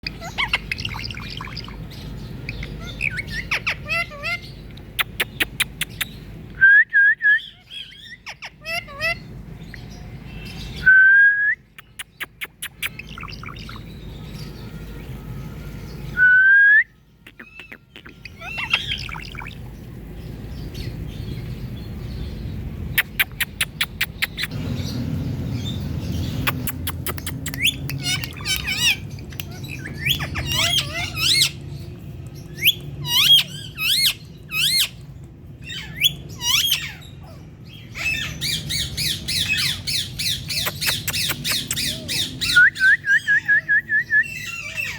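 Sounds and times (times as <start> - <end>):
parrot chirping and squawking: 0.0 - 6.4, 7.4 - 9.5, 11.8 - 14.5, 17.2 - 19.7, 22.9 - 42.6, 44.2 - 44.9
parrot clicking: 23.0 - 24.5, 26.4 - 29.5, 40.6 - 41.8.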